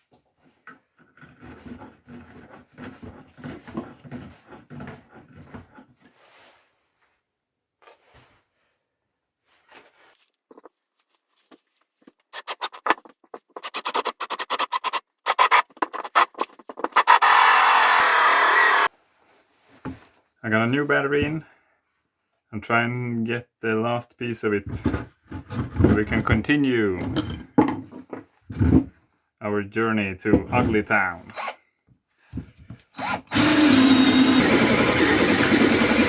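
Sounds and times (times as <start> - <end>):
scraping and rubbing on wood: 0.9 - 6.2, 11.4 - 18.9
cordless power tool running: 17.0 - 18.9, 33.0 - 36.0.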